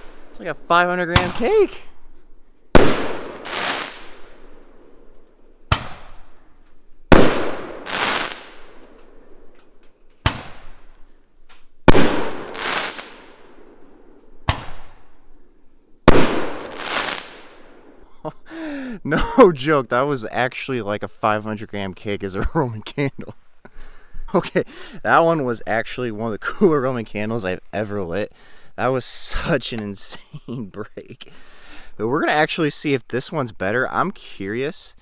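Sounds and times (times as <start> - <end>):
fireworks bangs: 0.0 - 1.9, 2.7 - 5.0, 5.7 - 6.4, 7.1 - 9.5, 10.3 - 10.9, 11.8 - 13.8, 14.4 - 15.1, 16.0 - 18.0
roman candle launch reports: 0.0 - 2.0, 2.8 - 4.9, 18.3 - 23.4, 24.3 - 35.0
firework hiss: 2.8 - 4.6, 7.1 - 8.8, 11.9 - 13.4, 16.1 - 17.7.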